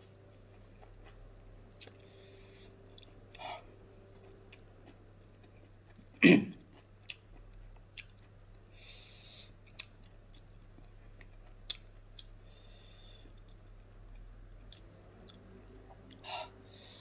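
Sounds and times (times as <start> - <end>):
wet mouth clicks while chewing: 7.0 - 8.3, 9.7 - 12.4.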